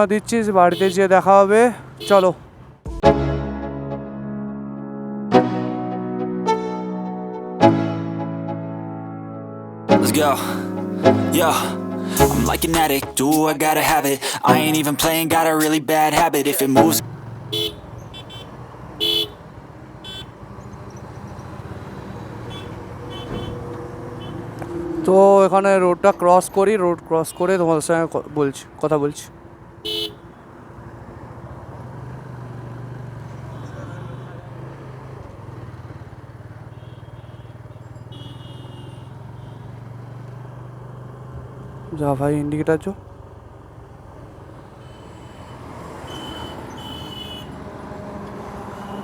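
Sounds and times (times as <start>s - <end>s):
traffic engine rumble: 0.0s - 3.0s, 9.9s - 49.0s
vehicle horn toots: 0.6s - 1.2s, 2.0s - 2.4s, 16.6s - 19.4s, 20.0s - 20.4s, 22.4s - 24.6s, 29.8s - 30.4s, 36.6s - 39.8s, 44.8s - 47.6s
motorcycle engine idling: 32.1s - 41.6s, 43.0s - 44.4s.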